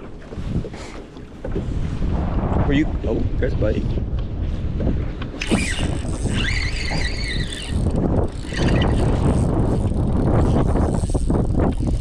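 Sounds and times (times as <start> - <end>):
wind rumble on microphone: 0.0 - 12.0
fishing reel drag squealing: 5.4 - 12.0.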